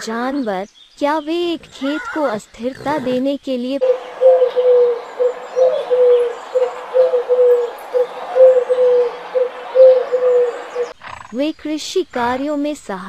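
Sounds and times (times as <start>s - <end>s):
pigeons cooing: 1.6s - 11.3s.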